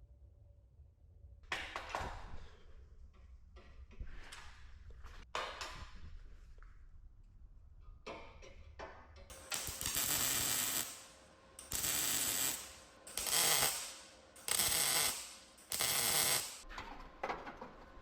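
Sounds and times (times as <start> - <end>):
mechanical tool working: 9.3 - 16.6.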